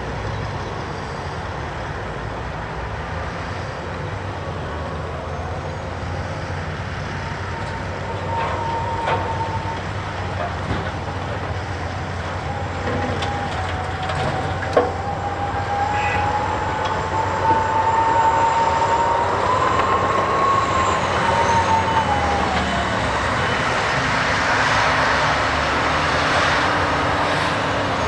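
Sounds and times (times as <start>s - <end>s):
diesel excavator rumbling: 0.0s - 28.0s.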